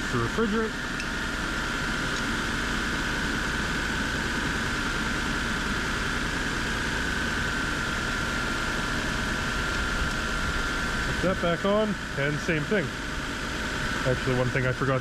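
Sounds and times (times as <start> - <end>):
air conditioning whine: 0.0 - 15.0
car engine idling: 0.0 - 15.0.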